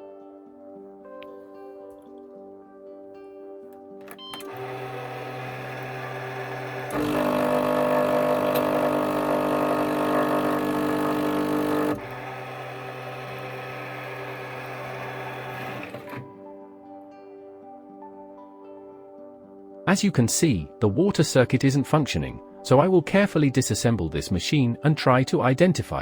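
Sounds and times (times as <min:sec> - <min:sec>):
water pump buzzing: 0:04.4 - 0:16.2
coffee machine humming: 0:04.4 - 0:16.3.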